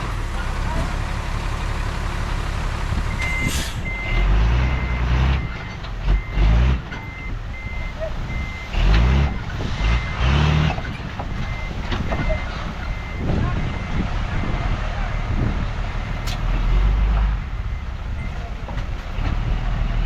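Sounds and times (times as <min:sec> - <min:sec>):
diesel engine rumbling: 0:00.0 - 0:20.0
reversing alarm beeping: 0:03.1 - 0:16.2, 0:17.6 - 0:18.5.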